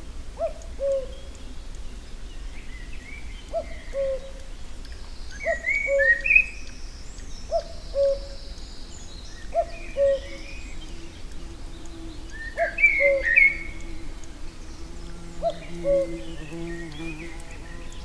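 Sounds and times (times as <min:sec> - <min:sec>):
songbirds twittering: 0:00.0 - 0:18.0
cuckoo calling: 0:05.4 - 0:06.6, 0:09.5 - 0:10.8, 0:11.8 - 0:14.4, 0:15.1 - 0:17.9.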